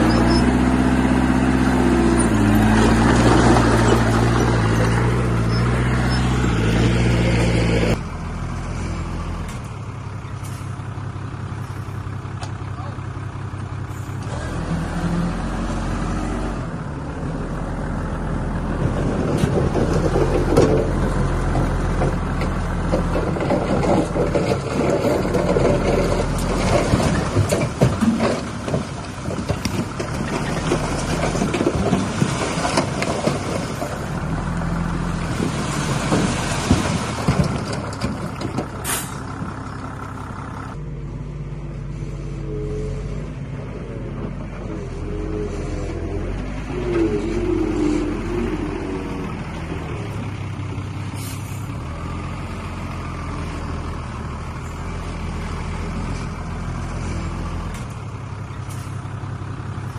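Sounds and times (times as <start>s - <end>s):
diesel engine running: 0.0s - 59.9s
rattling and grinding clatter: 1.7s - 7.9s, 18.7s - 40.8s.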